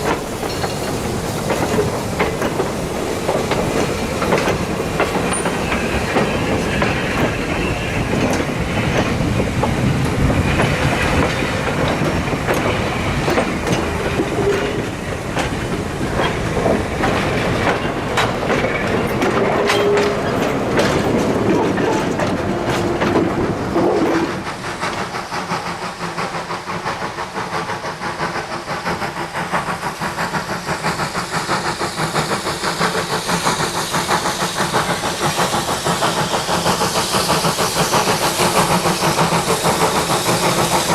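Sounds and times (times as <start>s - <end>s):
train wheels clickety-clack: 0.0s - 40.9s
wheel squeals: 5.2s - 8.4s.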